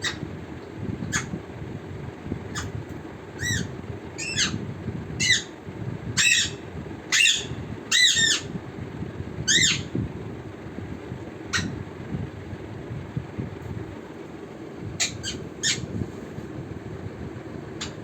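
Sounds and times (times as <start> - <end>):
parrot squawking: 0.0 - 0.2, 2.5 - 2.7, 3.4 - 4.6, 5.2 - 5.5, 6.2 - 8.5, 9.5 - 9.9, 11.5 - 11.8, 15.0 - 15.9
low background hum: 0.0 - 18.0.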